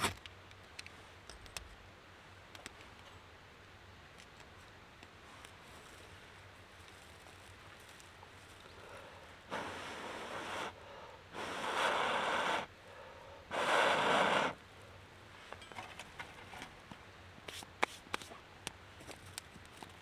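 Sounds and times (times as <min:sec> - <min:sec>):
long blows of breath: 0:08.8 - 0:15.0.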